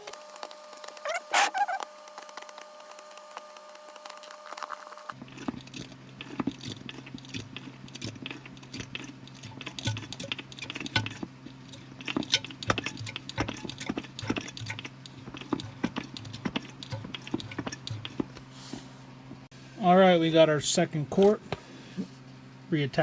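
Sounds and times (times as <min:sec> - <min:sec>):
hand oil pump clicking and squishing: 0:00.1 - 0:18.4.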